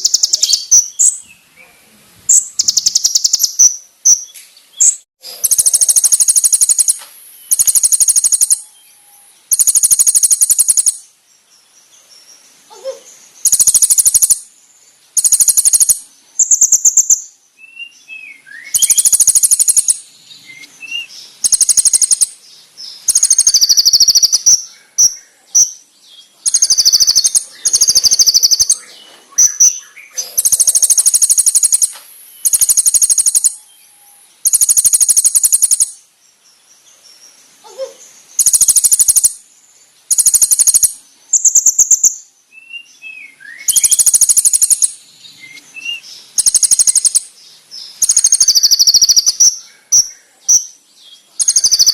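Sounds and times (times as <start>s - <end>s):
songbird high-pitched trills: 0.0s - 11.1s, 12.0s - 14.5s, 15.1s - 36.6s, 37.2s - 39.4s, 40.0s - 51.9s.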